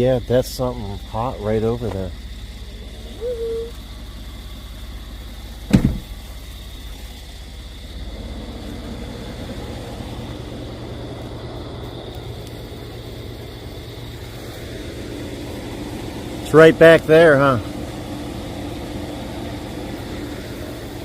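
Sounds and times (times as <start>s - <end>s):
road noise: 0.0s - 21.0s
truck engine rumble: 0.0s - 21.0s
sharp thump: 5.7s - 6.2s.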